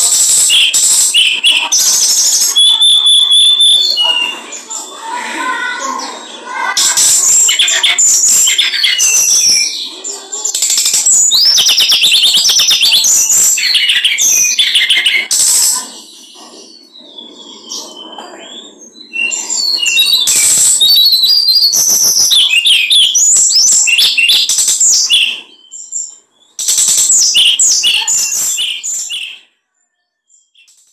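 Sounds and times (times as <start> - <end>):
songbird singing rapid high song: 19.1 - 25.9.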